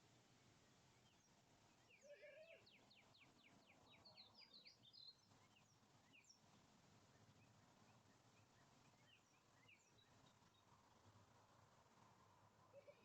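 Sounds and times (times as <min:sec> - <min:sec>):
faint bird chirps: 0:01.0 - 0:10.9, 0:12.7 - 0:13.0.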